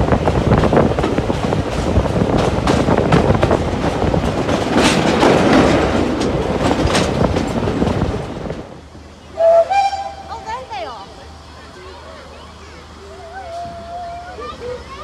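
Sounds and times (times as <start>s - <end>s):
train wheels clattering on rails: 0.0s - 10.8s.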